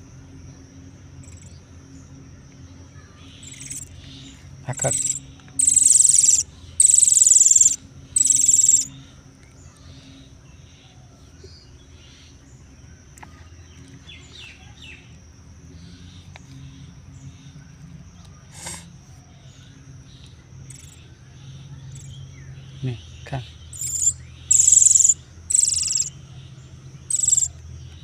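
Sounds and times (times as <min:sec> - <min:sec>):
cricket trilling: 0:00.0 - 0:28.0
faint chirps: 0:01.2 - 0:15.1, 0:15.8 - 0:28.0
bird harsh raspy calls: 0:03.4 - 0:08.9, 0:23.6 - 0:26.2, 0:27.1 - 0:27.5.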